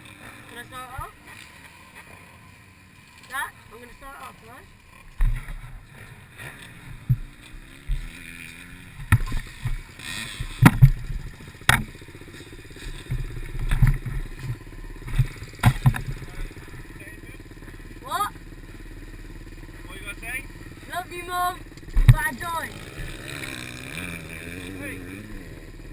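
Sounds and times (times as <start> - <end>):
motorcycle engine running at low revs: 0.0 - 25.9
sharp thumps and knocks: 5.2 - 5.8, 6.8 - 8.2, 8.9 - 12.0, 12.8 - 16.5, 21.8 - 22.4.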